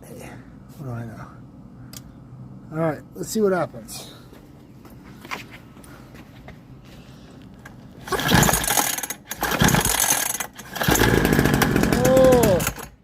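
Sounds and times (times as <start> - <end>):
recoil starter pulls: 8.0 - 13.0.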